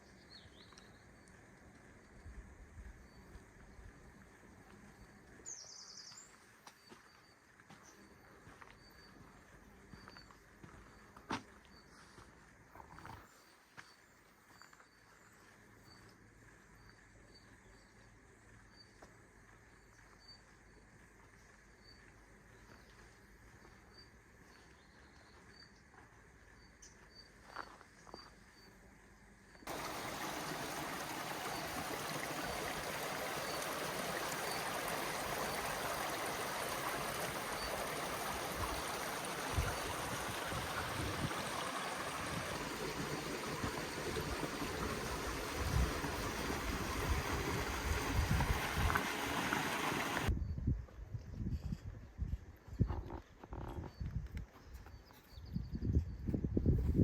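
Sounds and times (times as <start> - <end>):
faint insect chirps: 13.1 - 42.4
stream water rushing: 29.7 - 50.3.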